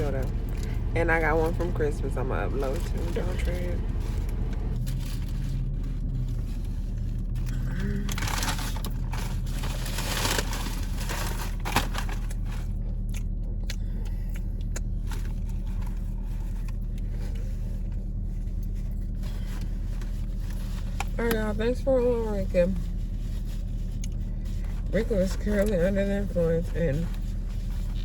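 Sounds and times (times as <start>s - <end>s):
rustling: 0.0s - 12.7s
car engine idling: 0.0s - 28.0s.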